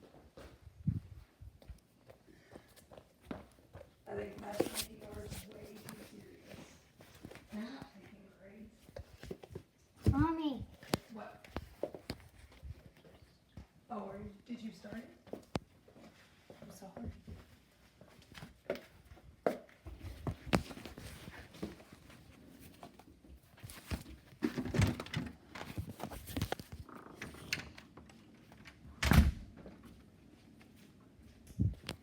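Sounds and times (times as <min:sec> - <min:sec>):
rustling handling noise: 0:04.2 - 0:13.4, 0:19.7 - 0:28.8.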